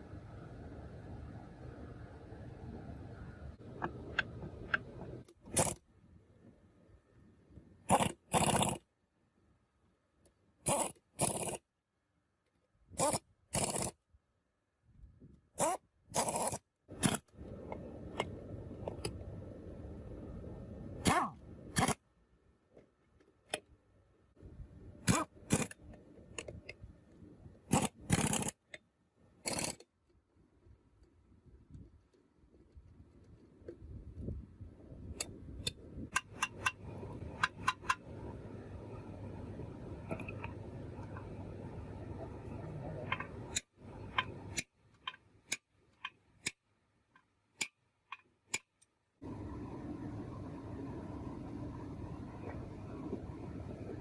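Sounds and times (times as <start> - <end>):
low background rumble: 0.0 - 7.9, 16.9 - 22.7, 30.4 - 44.6, 49.1 - 54.0
metal parts scraping: 29.4 - 29.8.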